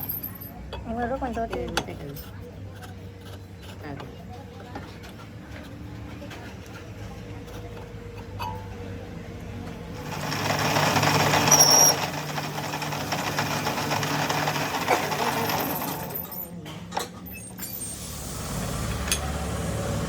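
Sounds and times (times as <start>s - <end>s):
workshop hum: 0.0s - 20.0s
machine motor running: 10.0s - 16.3s, 18.0s - 20.0s.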